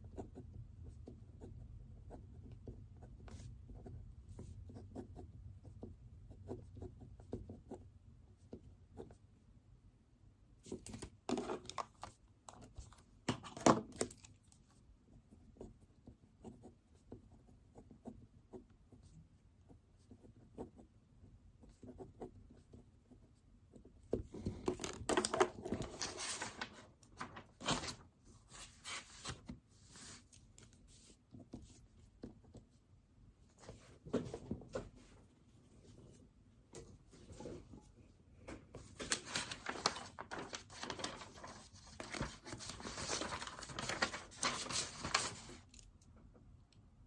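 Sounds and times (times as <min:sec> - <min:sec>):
paper sheets rustling: 0:24.4 - 0:31.1, 0:38.8 - 0:45.8.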